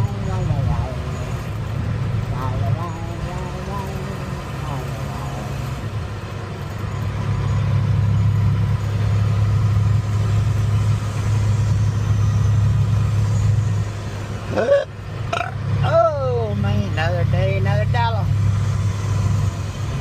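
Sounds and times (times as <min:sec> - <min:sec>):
truck engine and road noise: 0:00.0 - 0:20.0.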